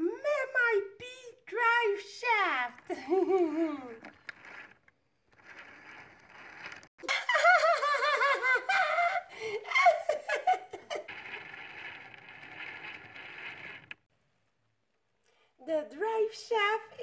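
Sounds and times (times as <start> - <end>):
high-pitched giggling laughter: 7.0 - 11.1.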